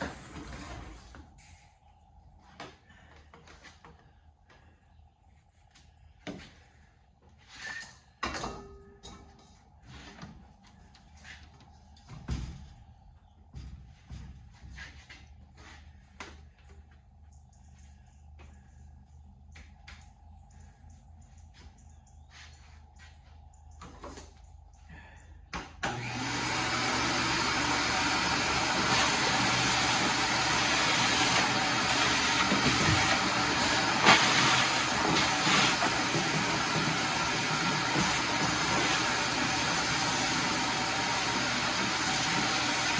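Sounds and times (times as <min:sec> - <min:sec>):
shop vacuum motor running: 0:25.8 - 0:42.9.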